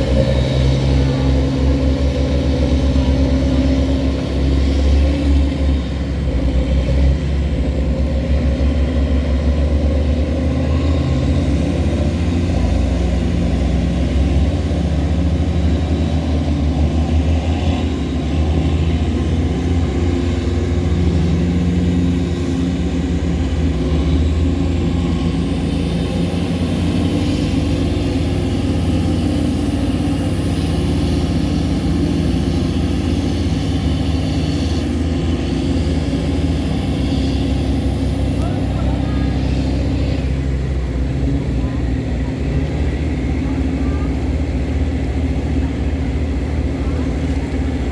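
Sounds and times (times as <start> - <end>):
diesel engine running under load: 0.0 - 47.9.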